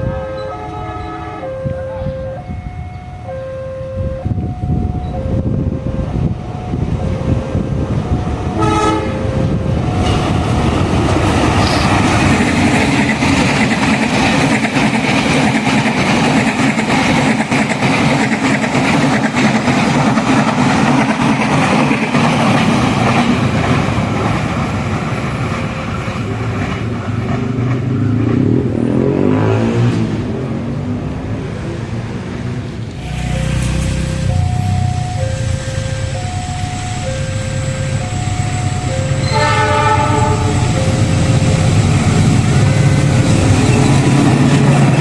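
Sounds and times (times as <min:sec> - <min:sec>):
train horn: 0:00.0 - 0:04.4, 0:08.5 - 0:09.6, 0:39.2 - 0:40.8
level crossing warning tone: 0:00.0 - 0:13.8, 0:33.0 - 0:45.0
train rumble and wheel clatter: 0:00.0 - 0:45.0.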